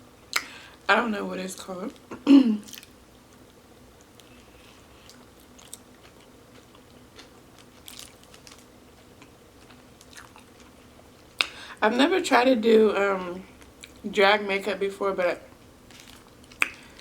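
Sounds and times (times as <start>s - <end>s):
person chewing food: 2.7s - 11.5s.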